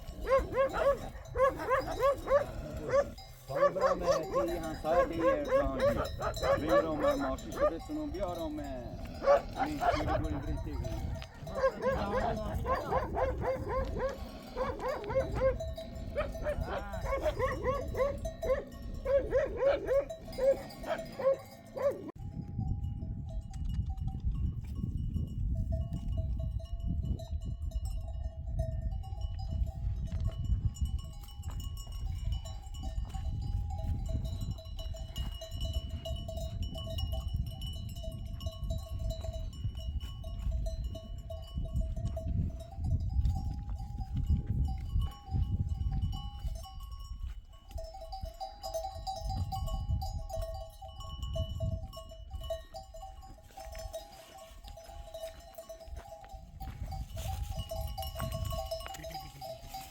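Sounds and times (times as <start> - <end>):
goats and sheep calling: 0.0 - 22.1.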